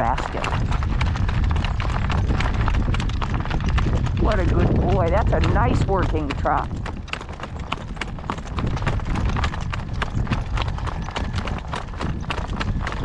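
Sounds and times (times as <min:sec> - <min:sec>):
horse hooves clopping at a trot: 0:00.0 - 0:13.0.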